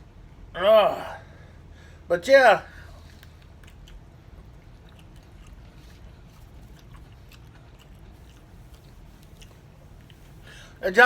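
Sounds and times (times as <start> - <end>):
low steady hum: 0.0 - 11.0
man chewing food: 2.8 - 10.8.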